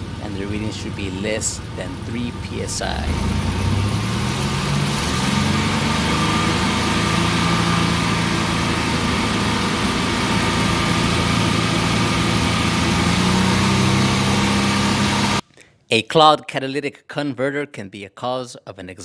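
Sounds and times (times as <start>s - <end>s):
car engine held at steady revs: 0.0s - 15.4s.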